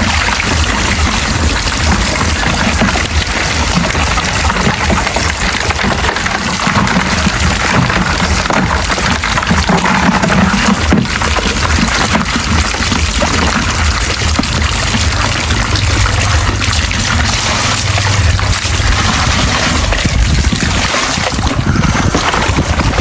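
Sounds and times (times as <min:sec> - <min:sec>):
low rumble: 0:00.0 - 0:09.2, 0:10.8 - 0:23.0
water pouring: 0:00.0 - 0:23.0.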